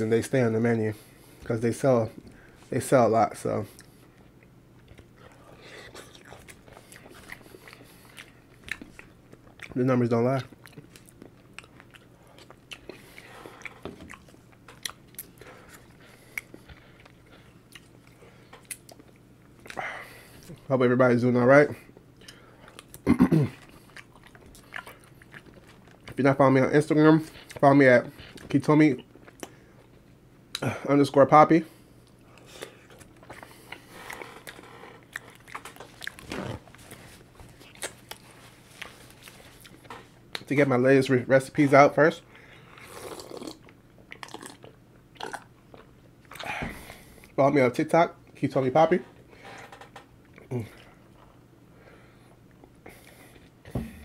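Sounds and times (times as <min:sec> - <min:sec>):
person chewing fries: 0:03.7 - 0:20.7, 0:21.9 - 0:30.7, 0:31.9 - 0:40.5, 0:42.5 - 0:47.4, 0:50.2 - 0:51.6.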